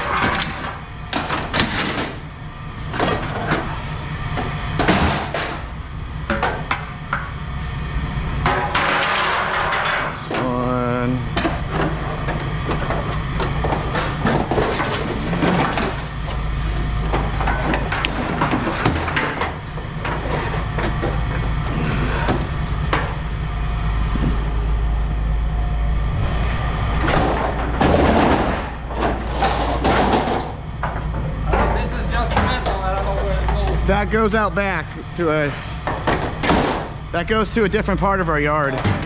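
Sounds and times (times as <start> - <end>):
low hum: 0.0 - 38.6
scrap metal clanking: 12.9 - 20.6
indistinct talk: 31.4 - 35.6.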